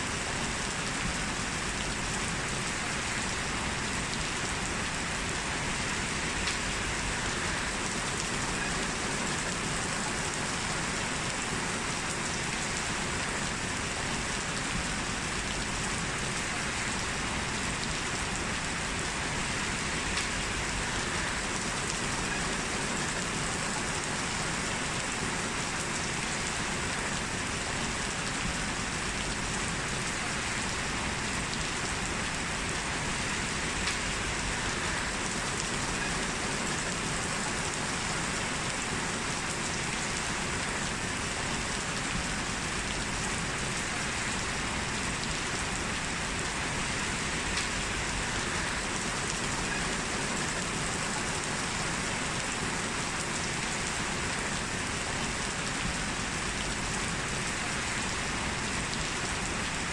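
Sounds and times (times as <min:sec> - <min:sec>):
heavy rain pouring: 0:00.0 - 0:59.9
rain drop ticks: 0:06.2 - 0:06.8, 0:20.0 - 0:20.6, 0:33.6 - 0:34.2, 0:47.4 - 0:47.8.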